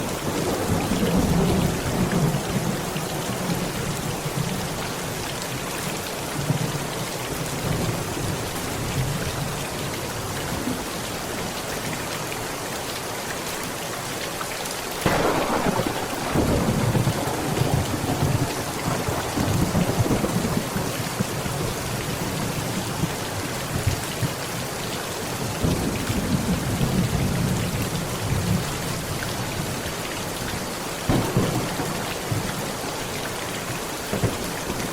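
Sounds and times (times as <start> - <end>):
heavy rain pattering on a tent: 0.0 - 34.9
sharp thunderclap: 15.0 - 21.3, 31.1 - 34.9
thunder rumbling: 15.0 - 21.7, 31.1 - 34.9.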